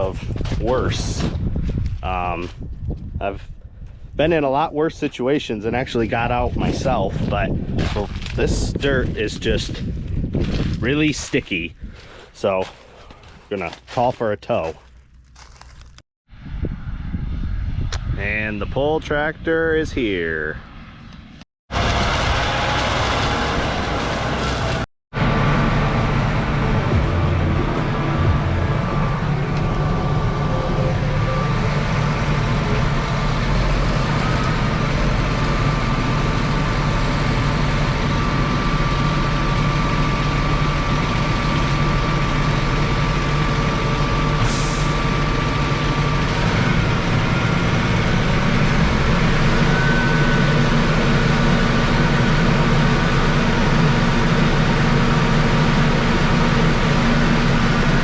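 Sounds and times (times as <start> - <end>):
heavy diesel engines running: 21.7 - 58.0.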